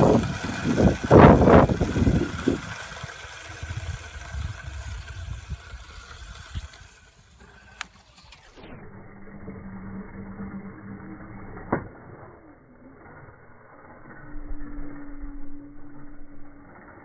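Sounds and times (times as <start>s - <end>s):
dirt bike engine revving: 0.0s - 13.7s.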